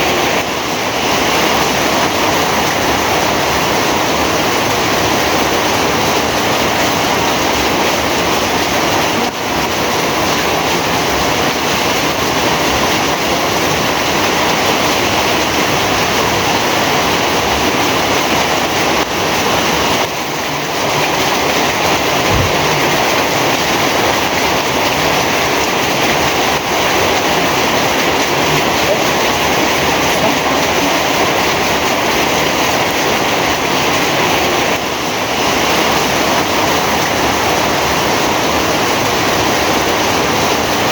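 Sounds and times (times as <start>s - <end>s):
heavy rain falling: 0.0s - 40.9s
brief low thump: 22.2s - 23.1s.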